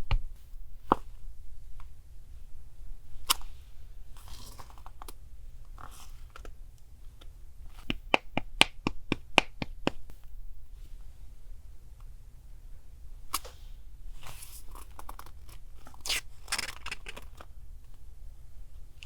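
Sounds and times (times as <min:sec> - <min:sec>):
sharp taps and clicks: 0:07.8 - 0:10.1.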